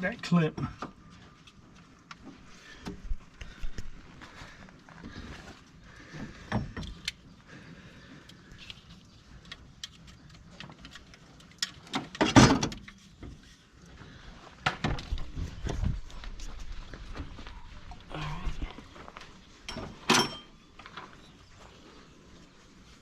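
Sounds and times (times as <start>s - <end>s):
hand tools and metal parts clanking: 8.6s - 13.8s, 19.2s - 21.4s.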